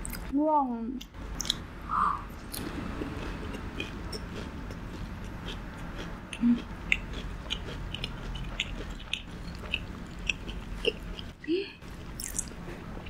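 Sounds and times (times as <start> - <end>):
wet mouth clicks: 1.0 - 1.6
crunchy chewing: 2.4 - 11.4.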